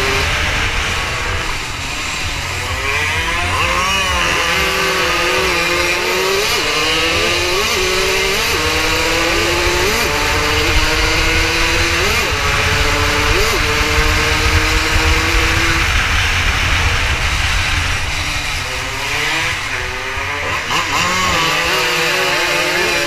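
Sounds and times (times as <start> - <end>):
motorcycle engine accelerating: 0.0 - 23.0
wind buffeting microphone: 6.5 - 22.1.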